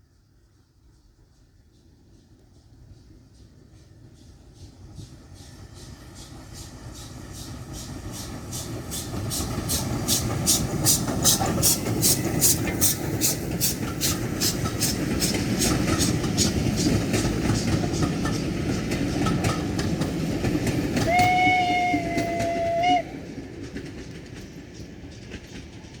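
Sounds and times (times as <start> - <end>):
steam train rumbling past: 0.0 - 26.0
steam whistle: 21.0 - 23.2.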